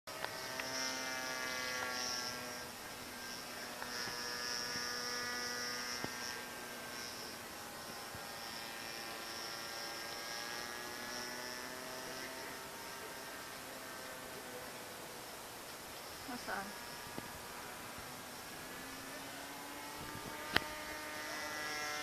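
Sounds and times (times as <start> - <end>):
model plane engine droning: 0.1 - 22.0.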